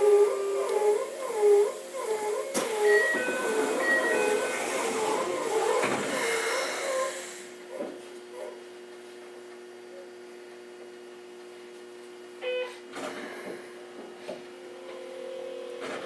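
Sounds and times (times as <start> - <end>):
train inverter whining: 0.0 - 7.9
train running hum: 0.0 - 8.5.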